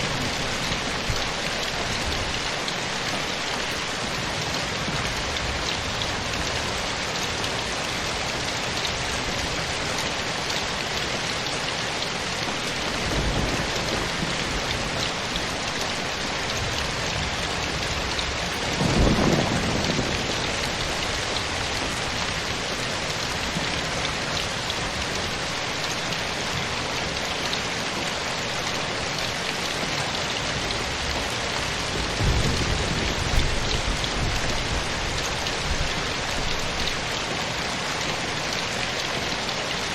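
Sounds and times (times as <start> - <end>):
rain falling: 0.0 - 39.9
thunder rumbling: 12.6 - 24.0, 30.6 - 36.0.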